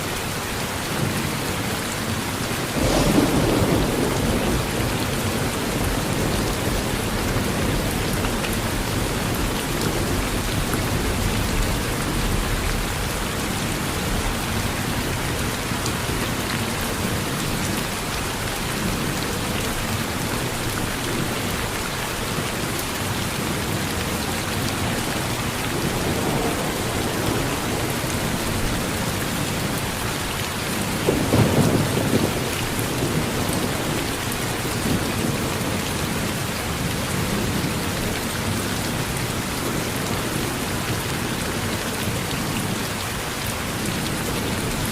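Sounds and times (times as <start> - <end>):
rain falling on a porch: 0.0 - 44.9
distant thunder rumbling: 2.7 - 13.3, 24.5 - 30.0, 30.7 - 34.1.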